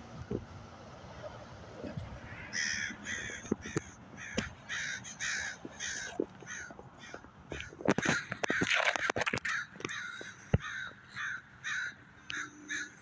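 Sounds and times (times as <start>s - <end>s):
bird calling: 0.0s - 13.0s
sharp clicks: 5.2s - 11.0s.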